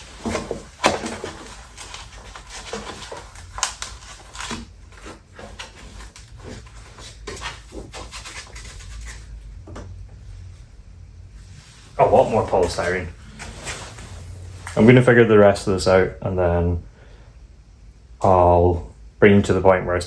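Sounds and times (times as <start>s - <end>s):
polystyrene pieces scraping: 0.0s - 9.4s.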